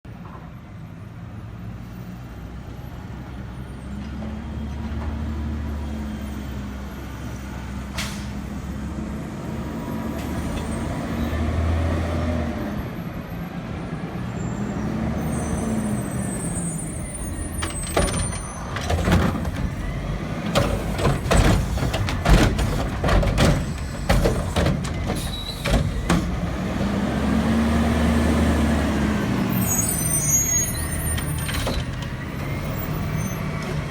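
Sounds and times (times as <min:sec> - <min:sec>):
loud bangs and knocks: 0:17.6 - 0:26.4
truck diesel engine revving: 0:19.0 - 0:29.6.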